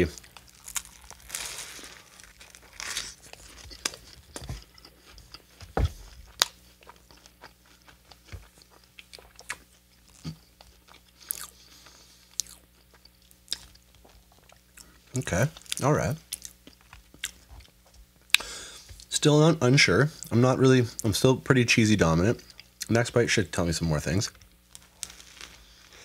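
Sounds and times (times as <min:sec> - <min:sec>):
crunchy biting and chewing: 0:00.1 - 0:15.0.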